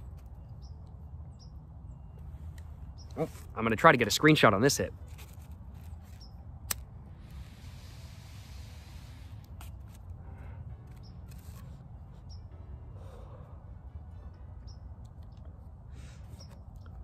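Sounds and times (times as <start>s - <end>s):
small birds chirping: 0.2s - 3.6s, 5.8s - 6.5s, 12.2s - 12.5s, 14.6s - 17.0s
breathy exhale: 12.9s - 13.8s.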